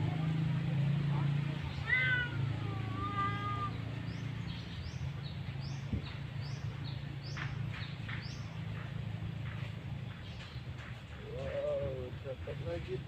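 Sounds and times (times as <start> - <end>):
small bird chirping: 1.2 - 11.0.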